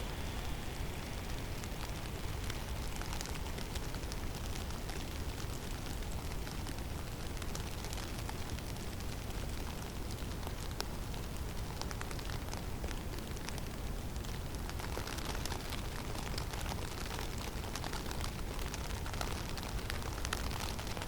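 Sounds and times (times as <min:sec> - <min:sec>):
blizzard wind rumbling: 0:00.0 - 0:06.1.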